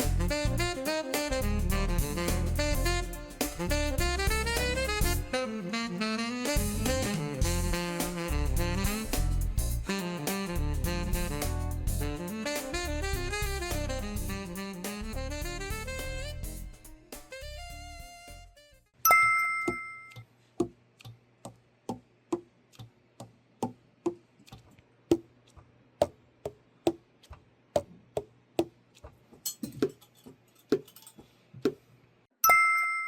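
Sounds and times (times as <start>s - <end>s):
bell-like ding: 19.1s - 20.2s, 32.4s - 33.0s.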